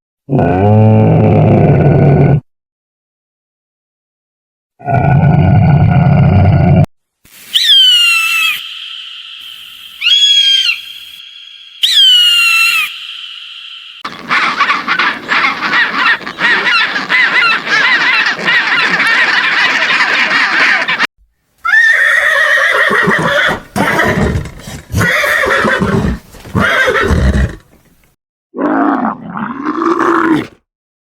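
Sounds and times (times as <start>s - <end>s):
quavering animal calls: 7.6s - 21.1s
held animal call: 7.6s - 23.5s
low pulsing animal sounds: 8.2s - 21.1s.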